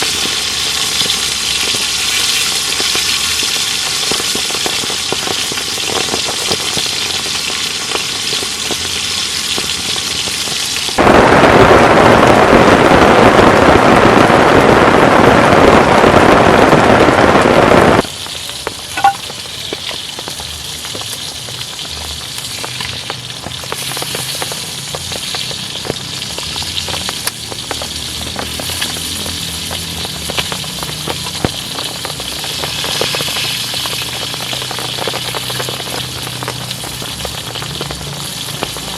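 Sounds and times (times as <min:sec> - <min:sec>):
steak sizzling in a pan: 0:00.0 - 0:11.0, 0:18.0 - 0:38.9.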